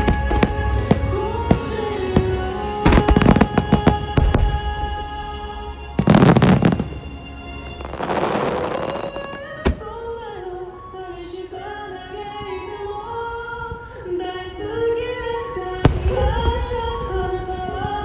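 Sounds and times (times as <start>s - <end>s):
pop song over loudspeakers: 0.0s - 6.8s, 7.9s - 18.0s
firework boom: 0.0s - 7.0s, 8.6s - 10.4s, 15.9s - 18.0s
firework sharp bang: 0.0s - 7.0s, 8.0s - 10.4s, 15.9s - 18.0s
firework hissing burst: 0.0s - 7.1s.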